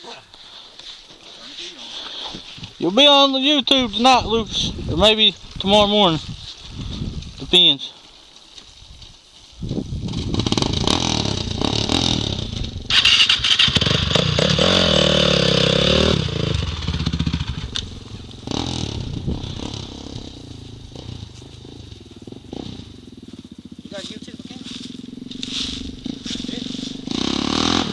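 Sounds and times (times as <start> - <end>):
dirt bike engine revving: 9.8 - 27.9.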